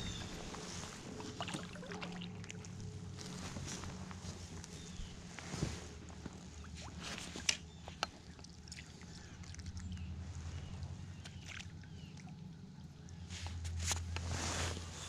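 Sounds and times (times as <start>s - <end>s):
paddle splashing in water: 0.1s - 2.8s.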